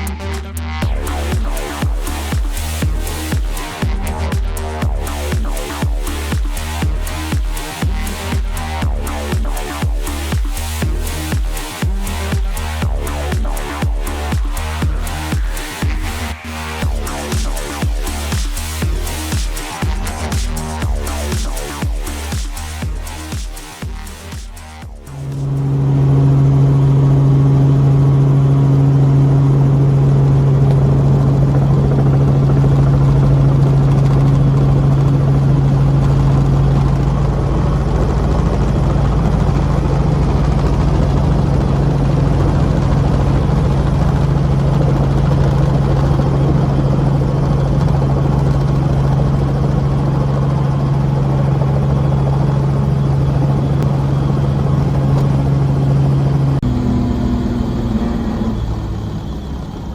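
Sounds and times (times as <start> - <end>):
helicopter engine and rotors: 25.2 - 59.9.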